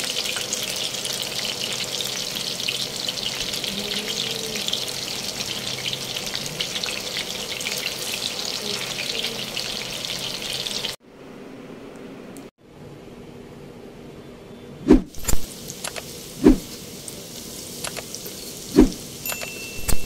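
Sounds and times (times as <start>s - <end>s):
chicken sizzling in oil: 0.0s - 11.0s, 15.1s - 20.0s.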